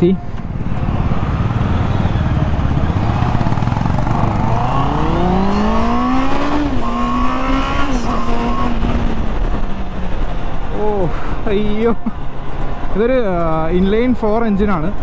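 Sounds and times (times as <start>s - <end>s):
motorcycle engine accelerating: 0.4s - 10.2s.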